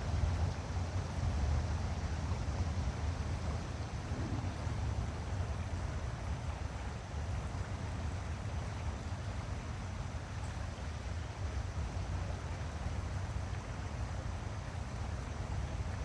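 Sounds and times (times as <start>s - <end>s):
outdoor rushing rumble: 1.7s - 5.7s.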